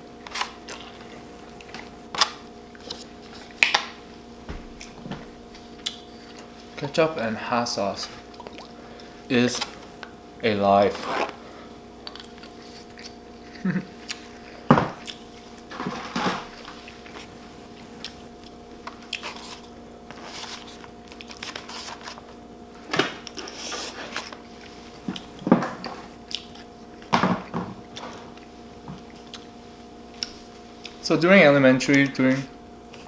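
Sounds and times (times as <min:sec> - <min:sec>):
chewing and crunching food: 0:00.3 - 0:03.9, 0:04.8 - 0:06.8, 0:08.0 - 0:09.7, 0:12.0 - 0:15.7, 0:16.5 - 0:22.4, 0:23.1 - 0:27.1, 0:27.8 - 0:31.0.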